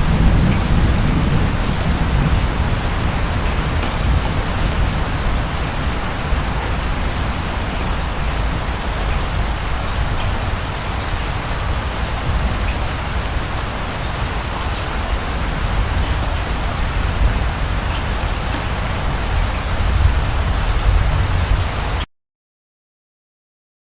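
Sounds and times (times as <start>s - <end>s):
steady rain falling: 0.0s - 22.1s.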